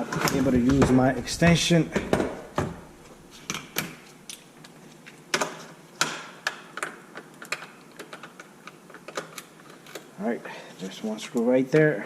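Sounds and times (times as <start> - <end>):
hand tools clicking on plastic parts: 3.5 - 10.1.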